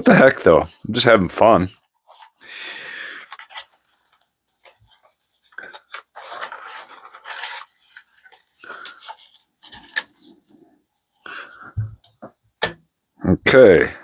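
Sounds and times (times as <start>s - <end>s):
belt scraping and rubbing: 3.2s - 10.8s.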